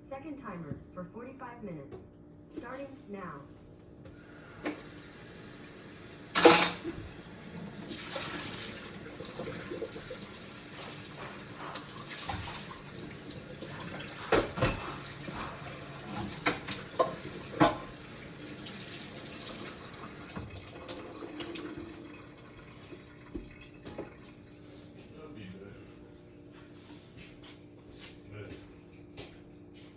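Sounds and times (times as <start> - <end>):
tap water running into sink: 4.2 - 24.4.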